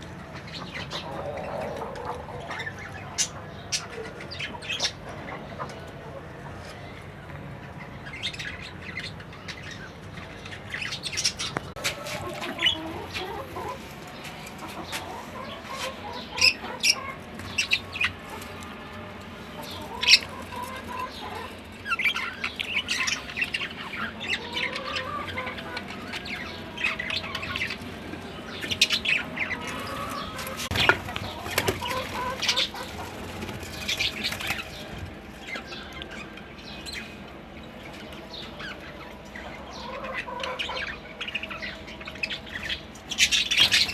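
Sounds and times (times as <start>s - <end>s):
birds chirping and squawking: 0.2s - 43.9s
wings flapping: 30.4s - 35.0s.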